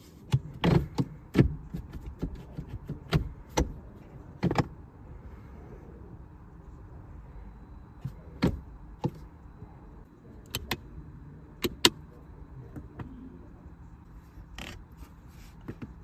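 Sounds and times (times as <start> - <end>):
clicks and knocks handling car parts: 0.0 - 4.9, 8.0 - 9.6, 11.6 - 12.1, 14.3 - 16.0
steady low hum: 0.0 - 16.0.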